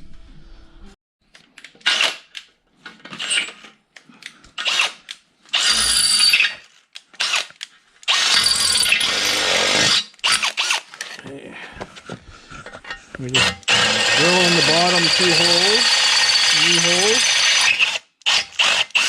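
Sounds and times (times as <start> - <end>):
electric drill boring metal: 5.5 - 6.6, 8.1 - 10.8, 13.4 - 19.0.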